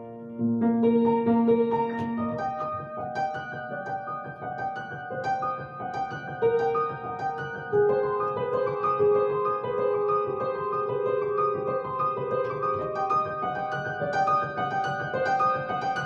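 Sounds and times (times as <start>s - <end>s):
slow solo piano piece: 0.0s - 16.0s.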